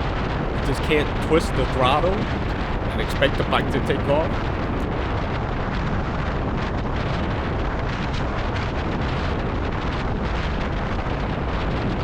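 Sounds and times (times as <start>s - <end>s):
wind buffeting microphone: 0.4s - 4.8s.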